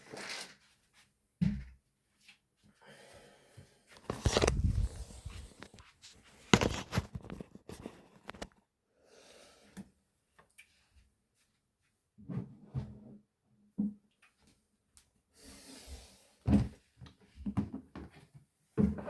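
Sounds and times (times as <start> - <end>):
rustling and clatter: 4.0 - 8.6.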